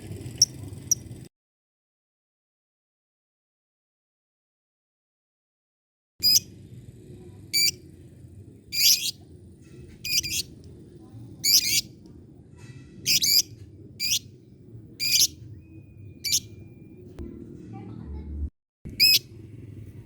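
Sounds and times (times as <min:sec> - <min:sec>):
lovebird shrill calls: 0:06.2 - 0:06.4, 0:07.6 - 0:07.8, 0:08.8 - 0:09.2, 0:10.0 - 0:10.5, 0:11.4 - 0:11.9, 0:13.1 - 0:14.2, 0:15.0 - 0:15.4, 0:16.2 - 0:16.5, 0:19.0 - 0:19.2.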